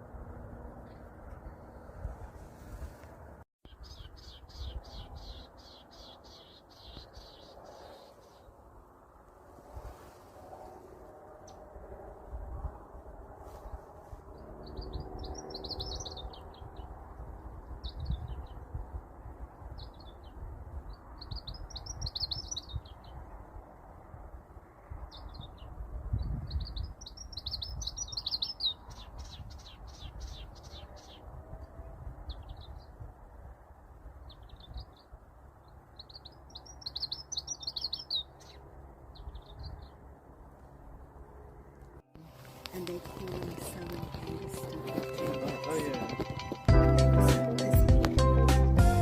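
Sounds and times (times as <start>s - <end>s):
small bird singing: 3.7s - 8.5s, 14.4s - 16.9s, 19.8s - 23.2s, 25.1s - 31.3s, 34.3s - 40.0s.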